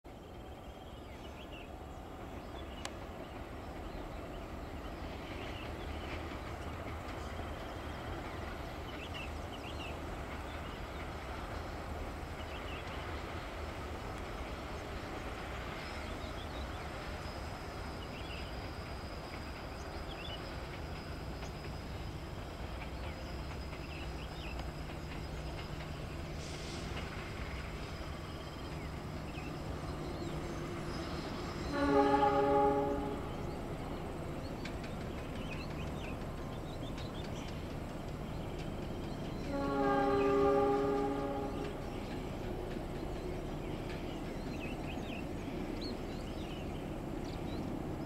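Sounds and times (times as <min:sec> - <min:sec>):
diesel locomotive rumbling: 0:00.1 - 0:48.0
train horn: 0:31.6 - 0:33.5, 0:39.4 - 0:41.9.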